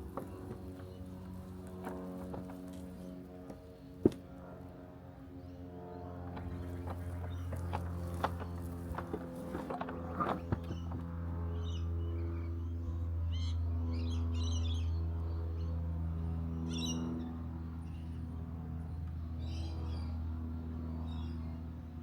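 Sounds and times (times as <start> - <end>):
birds chirping: 0.0 - 3.2
robotic lawn mower humming: 0.0 - 4.2, 6.2 - 11.5.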